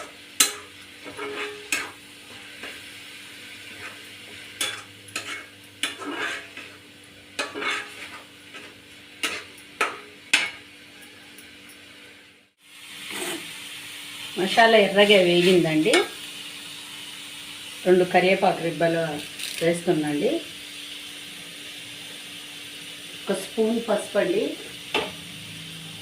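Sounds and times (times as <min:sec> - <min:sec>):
spoon scraping and clinking pan: 0:00.0 - 0:02.0, 0:04.6 - 0:06.8, 0:07.4 - 0:10.6
masala sizzling in hot oil: 0:00.0 - 0:26.0.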